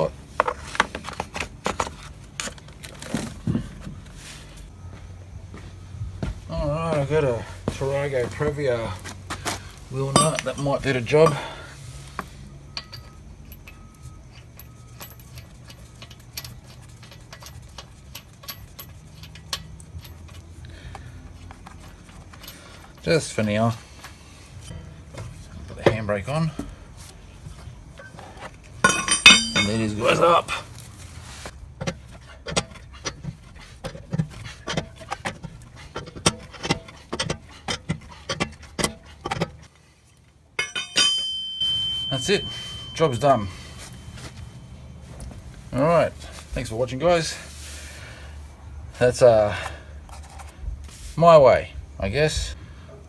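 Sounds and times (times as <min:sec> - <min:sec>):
low steady hum: 0:00.0 - 0:53.0
metal wheel nut clinking: 0:09.9 - 0:26.7, 0:27.6 - 0:30.6, 0:31.7 - 0:46.7.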